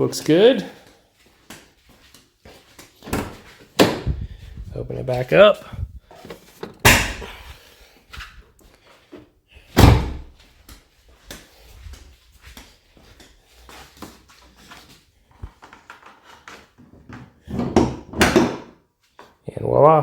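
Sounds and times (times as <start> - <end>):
car hood thunk: 6.6 - 7.3, 9.8 - 10.3.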